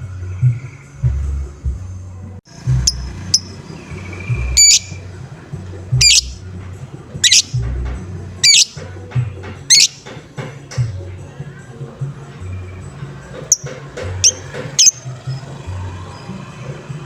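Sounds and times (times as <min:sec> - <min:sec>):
lovebird chirps and calls: 0:02.8 - 0:05.0, 0:06.0 - 0:06.4, 0:07.2 - 0:07.6, 0:08.4 - 0:08.8, 0:09.7 - 0:10.1, 0:13.5 - 0:15.0
music with bass beat: 0:05.7 - 0:06.5.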